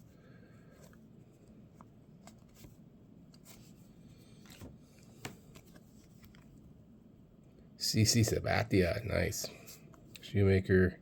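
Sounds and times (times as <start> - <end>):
cards flipped with soft ticks: 4.4 - 6.6.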